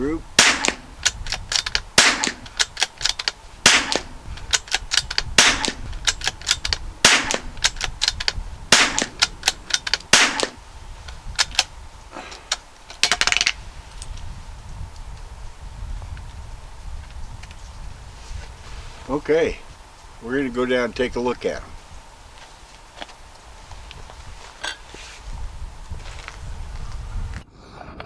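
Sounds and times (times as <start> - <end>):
rifle bolt clicking: 0.4 - 10.5
rifle shots: 0.4 - 10.6.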